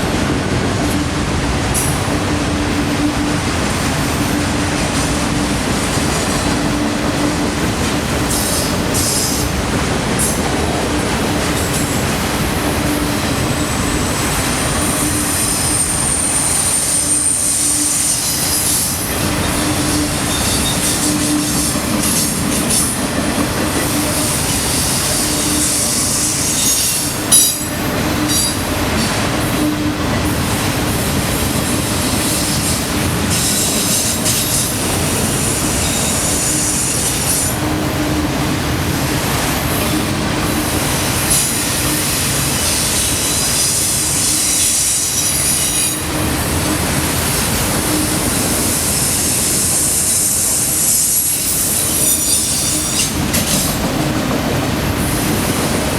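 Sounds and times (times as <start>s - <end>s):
train wheels clattering: 0.0s - 55.9s
high-pitched wheel squeals: 14.6s - 23.0s.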